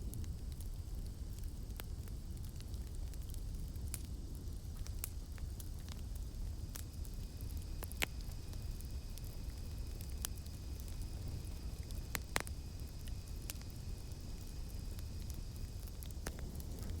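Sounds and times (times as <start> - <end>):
burning wood popping: 0.0 - 17.0
low rumble of flames: 0.0 - 17.0.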